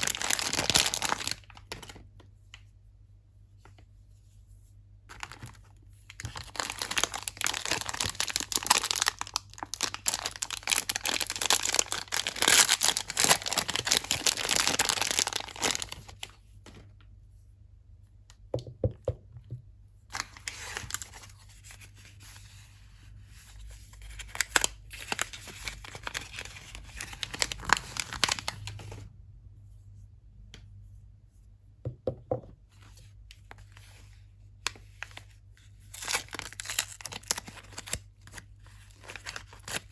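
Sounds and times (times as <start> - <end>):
packaging tearing and crinkling: 0.0 - 2.0, 5.1 - 16.3, 20.1 - 21.3, 24.1 - 29.0, 35.9 - 39.9.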